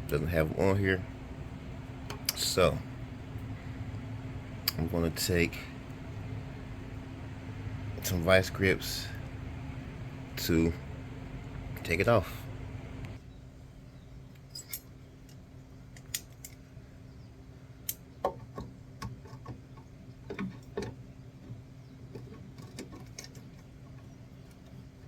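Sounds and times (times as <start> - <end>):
faint steady hum: 0.0 - 25.0
locking pliers clicking on metal: 16.0 - 16.6.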